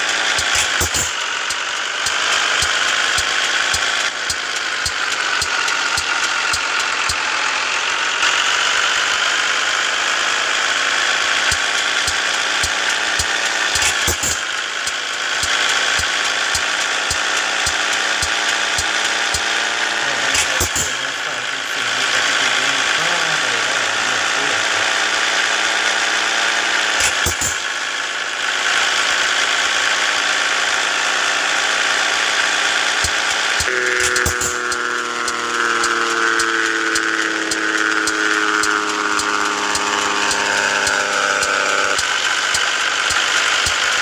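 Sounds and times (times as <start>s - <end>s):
regular ticking: 0.0s - 7.8s, 11.4s - 25.1s, 27.0s - 27.7s, 33.0s - 44.0s
sharp clicks: 0.0s - 7.8s, 11.4s - 25.0s, 27.0s - 27.7s, 33.0s - 44.0s
diesel truck engine running: 0.0s - 27.8s, 31.0s - 44.0s
road noise: 0.0s - 44.0s.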